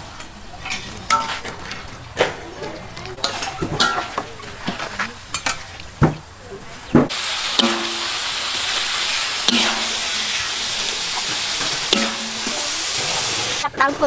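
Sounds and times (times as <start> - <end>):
stir-fry sizzling in a wok: 7.1 - 14.0
cookware knocking: 11.9 - 12.8.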